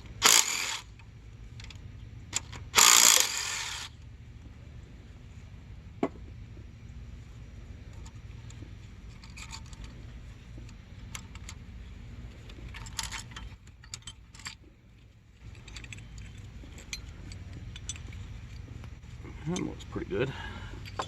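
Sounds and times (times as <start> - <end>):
steady low hum: 0.0 - 21.0
metal engine parts clinking: 0.2 - 3.8, 7.8 - 21.0.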